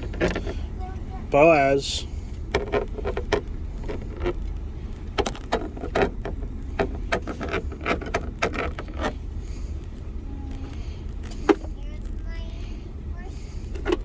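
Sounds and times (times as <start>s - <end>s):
steady low hum: 0.0s - 14.0s
irregular clicks and knocks: 2.4s - 9.2s, 13.7s - 14.0s.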